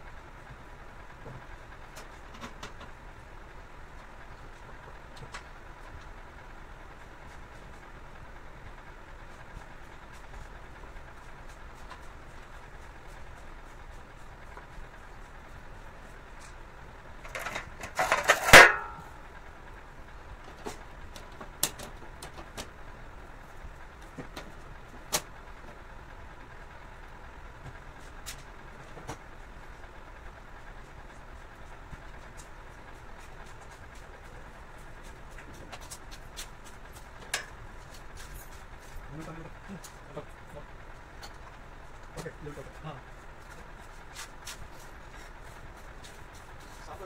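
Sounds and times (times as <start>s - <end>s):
rattling clatter: 17.2s - 19.2s.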